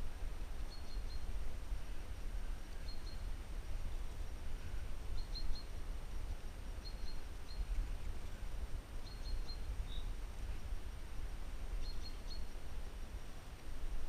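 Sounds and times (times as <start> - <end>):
small bird chirping: 0.6 - 1.3, 2.7 - 4.4, 5.1 - 5.8, 6.8 - 8.4, 9.0 - 10.2, 11.8 - 12.6.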